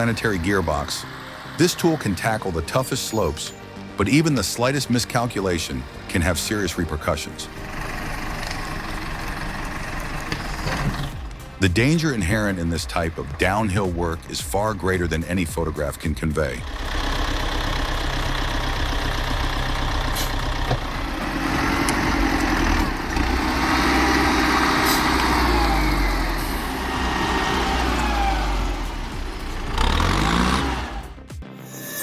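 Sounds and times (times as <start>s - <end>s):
heavy machine engine revving: 7.4s - 13.3s, 16.6s - 31.3s.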